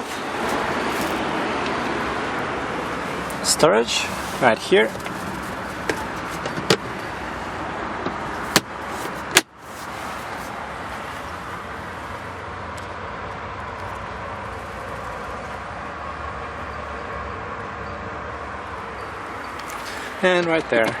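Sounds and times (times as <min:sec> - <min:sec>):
car trunk panels knocking: 0:05.0 - 0:07.0, 0:08.5 - 0:09.5.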